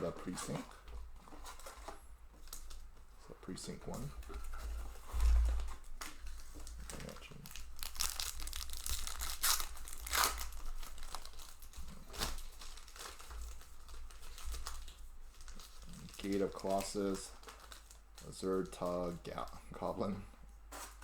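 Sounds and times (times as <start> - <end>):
wrapper crinkling and tearing: 5.6 - 19.8.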